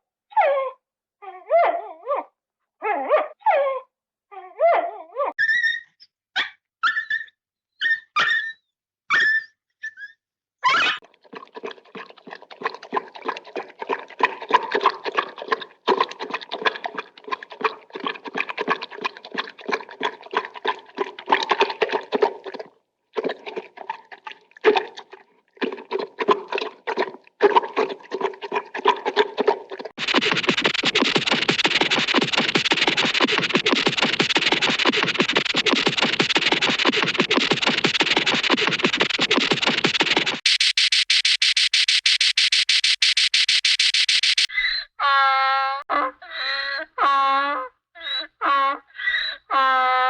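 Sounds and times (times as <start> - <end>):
high dog-like yips: 0.3 - 3.9, 4.5 - 11.0
rapid chattering pulses: 29.9 - 44.5.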